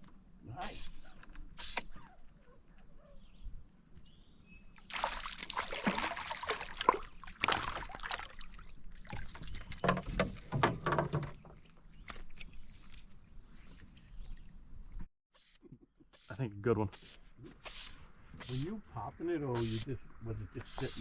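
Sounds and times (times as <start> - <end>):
crickets chirping: 0.0 - 15.1, 16.3 - 21.0
fish thrashing splashes: 4.9 - 10.6
water sloshing against canoe: 4.9 - 11.7.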